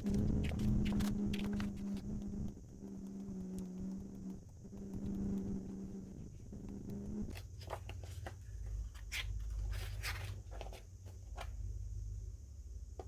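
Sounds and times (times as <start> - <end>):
low steady rumble: 0.0 - 13.0
steady hum: 0.0 - 13.0
paper or plastic rustling: 7.3 - 11.5.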